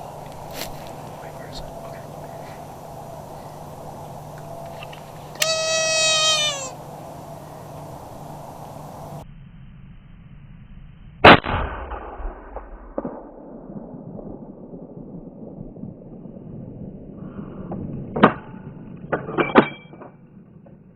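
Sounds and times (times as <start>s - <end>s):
sharp cracks: 4.3s - 6.8s.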